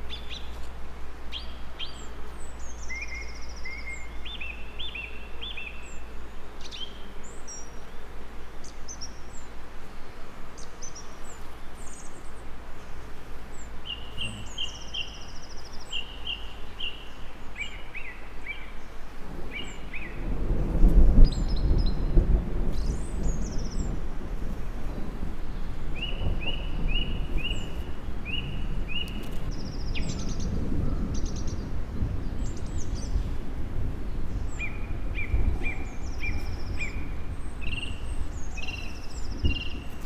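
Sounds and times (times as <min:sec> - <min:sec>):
songbirds chirping and trilling: 0:00.0 - 0:40.0
steady background hiss: 0:00.0 - 0:40.0
low rumble of thunder: 0:18.6 - 0:40.0.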